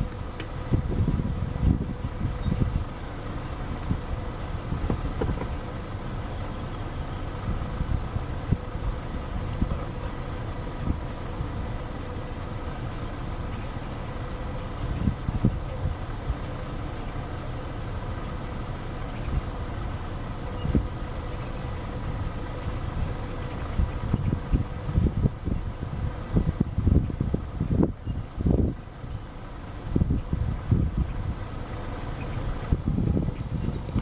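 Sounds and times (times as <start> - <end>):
wind buffeting microphone: 0.0 - 11.8, 14.6 - 16.5, 22.0 - 31.5, 32.5 - 34.0.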